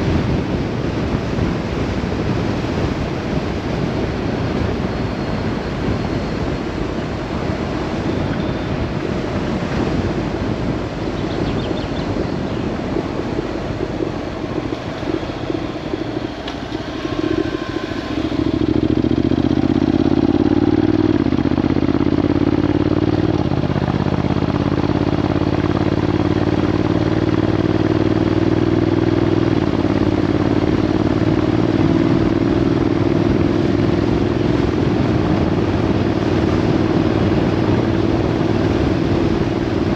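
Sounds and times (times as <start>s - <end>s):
motorcycle engine: 0.0s - 39.9s
wind rushing over microphone: 0.0s - 39.9s.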